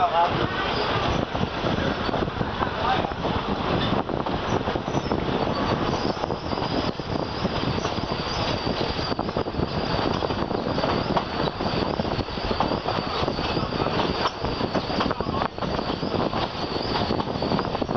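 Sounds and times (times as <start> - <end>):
train wheels on rails: 0.0 - 17.9
faint high whine: 4.5 - 17.9.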